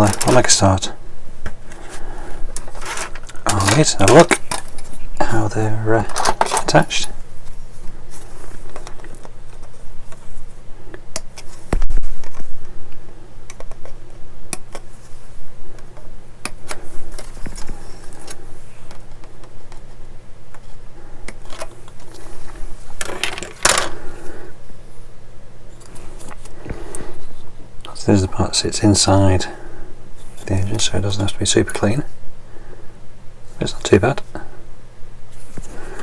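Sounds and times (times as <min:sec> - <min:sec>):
plastic parts clicking and clattering: 0:00.0 - 0:00.6, 0:02.5 - 0:05.0, 0:06.0 - 0:06.9, 0:21.3 - 0:24.0
rustling clatter: 0:01.7 - 0:05.1, 0:21.4 - 0:24.0.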